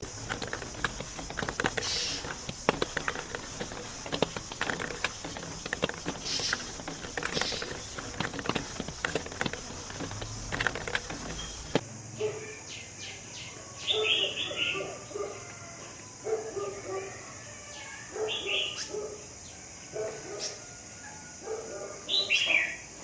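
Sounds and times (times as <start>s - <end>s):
marbles clicking and rattling on track: 0.0s - 11.8s.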